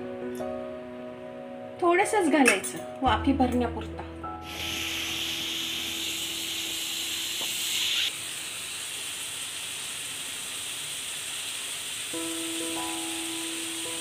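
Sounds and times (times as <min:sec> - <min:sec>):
vegetables sizzling in hot fat: 0:04.4 - 0:14.0.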